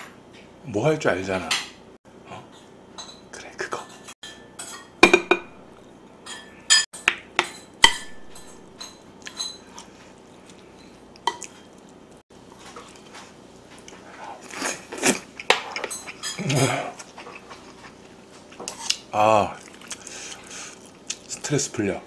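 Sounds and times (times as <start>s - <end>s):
bowl knocking against a plate: 5.0s - 5.6s.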